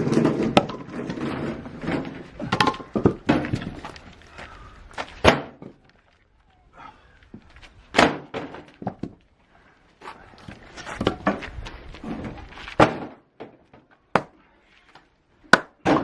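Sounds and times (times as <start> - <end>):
firewood thunks: 0.0 - 5.9, 7.9 - 9.2, 12.7 - 14.4, 15.5 - 16.0.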